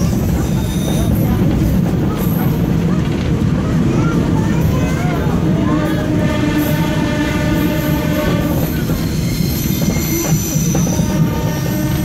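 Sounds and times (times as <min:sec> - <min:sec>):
train wheels rumbling on rails: 0:00.0 - 0:12.0
high-pitched wheel squeal: 0:08.5 - 0:12.0.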